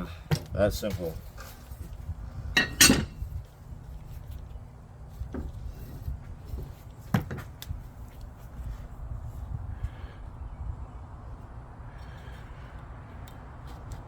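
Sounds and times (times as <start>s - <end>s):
metal blade clunks: 2.6s - 3.2s.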